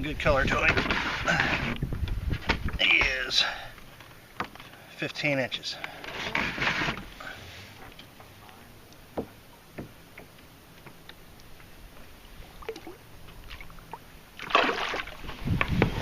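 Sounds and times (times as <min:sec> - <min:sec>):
faint knocks and clicks on kayak: 0:09.0 - 0:11.6.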